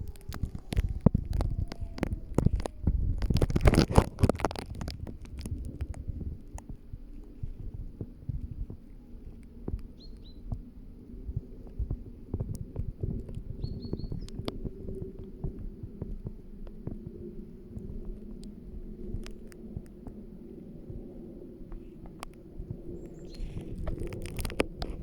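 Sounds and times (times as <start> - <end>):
bird chirping: 10.0 - 10.5, 13.5 - 14.4.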